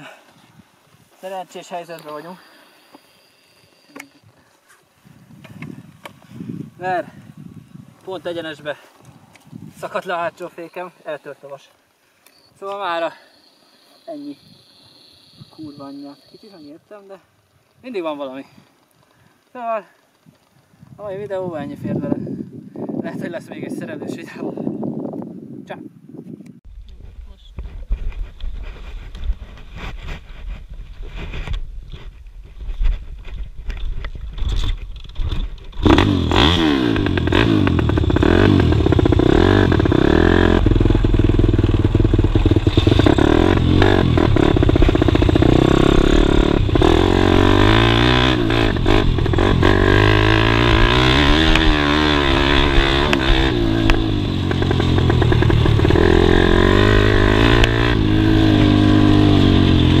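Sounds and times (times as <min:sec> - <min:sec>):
pit bike engine revving: 0:35.8 - 1:00.0.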